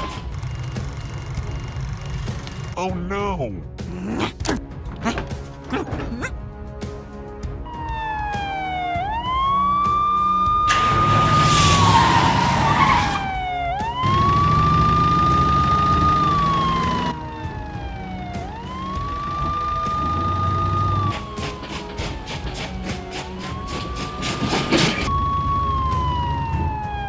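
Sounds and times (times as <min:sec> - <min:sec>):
emergency siren wailing: 0:07.6 - 0:27.0.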